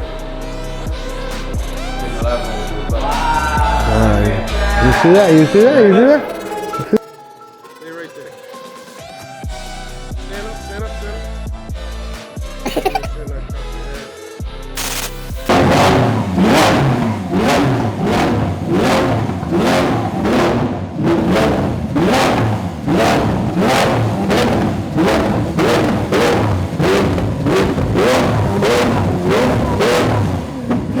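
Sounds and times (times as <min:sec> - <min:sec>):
car engine revving: 0:00.0 - 0:05.4, 0:14.8 - 0:31.0
hip-hop music: 0:00.0 - 0:18.2.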